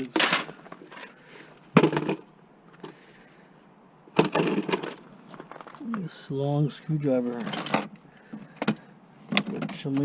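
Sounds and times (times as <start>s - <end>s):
clattering of hard parts: 0.0s - 3.0s, 4.2s - 5.8s, 7.2s - 10.0s.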